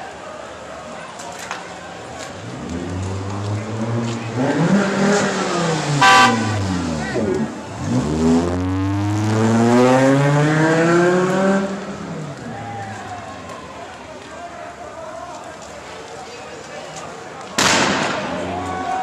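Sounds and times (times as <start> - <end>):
car engine revving: 2.4 - 12.3
car horn toot: 6.0 - 6.7.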